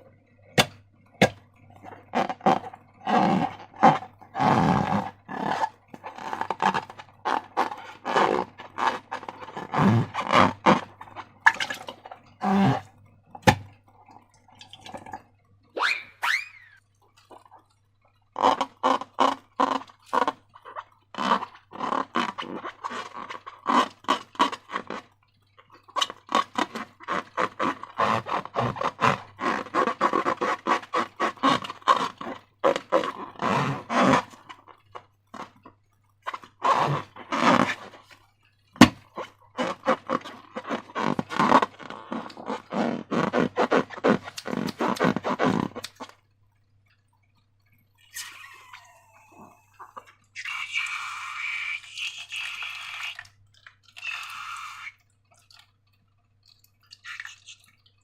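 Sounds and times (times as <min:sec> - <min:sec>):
slime squelching: 0:00.0 - 0:46.2, 0:47.9 - 0:58.0.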